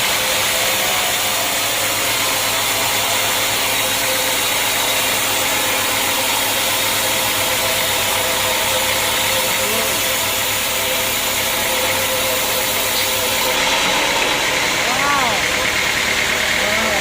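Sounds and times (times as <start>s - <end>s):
sawmill machinery drone: 0.0s - 17.0s.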